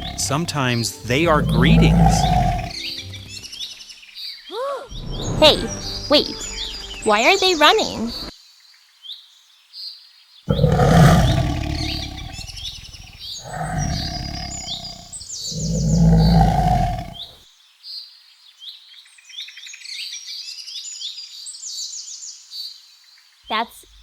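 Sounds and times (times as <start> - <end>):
tiger roaring: 0.0 - 2.9, 10.5 - 17.3
birds chirping and twittering: 0.0 - 5.2, 10.5 - 17.3.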